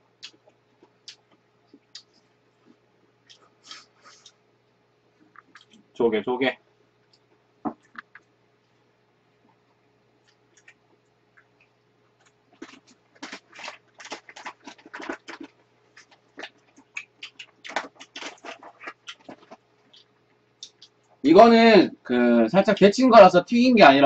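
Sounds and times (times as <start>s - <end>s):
wet chewing and mouth smacks: 0.2s - 4.4s, 5.2s - 5.9s, 9.5s - 21.2s.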